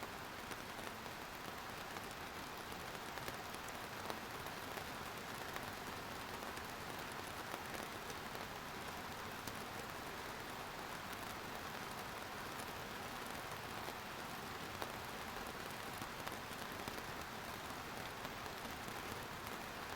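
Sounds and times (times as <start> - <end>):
steady rain hissing: 0.0 - 19.9.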